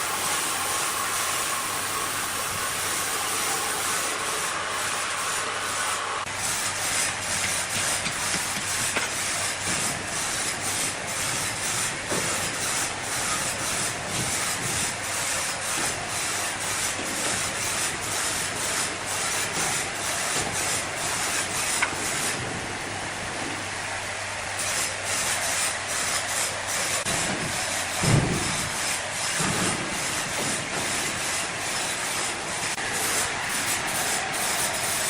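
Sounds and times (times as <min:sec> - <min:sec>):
sawmill machinery cutting wood: 0:00.0 - 0:35.0.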